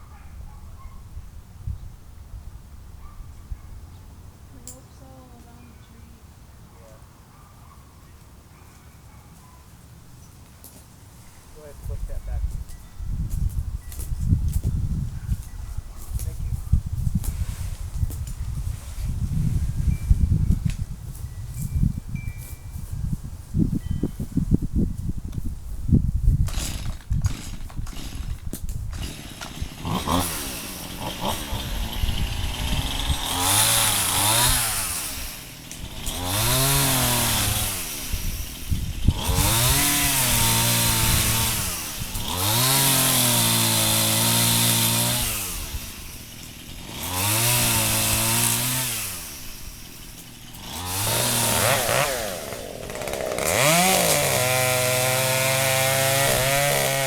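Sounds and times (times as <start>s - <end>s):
chainsaw revving and idling: 26.4s - 57.0s.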